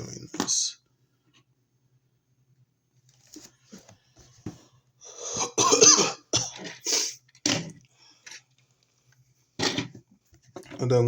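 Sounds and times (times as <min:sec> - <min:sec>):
person coughing: 0:05.2 - 0:07.1.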